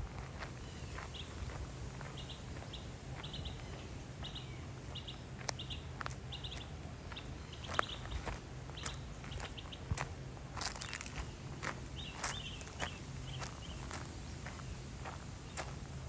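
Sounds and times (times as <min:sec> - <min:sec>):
steady low hum: 0:00.0 - 0:16.0
bird chirping: 0:02.2 - 0:09.8, 0:10.6 - 0:14.7.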